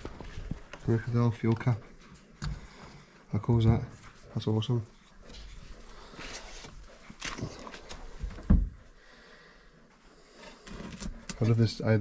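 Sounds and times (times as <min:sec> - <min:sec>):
rustling and handling: 0:00.0 - 0:08.8.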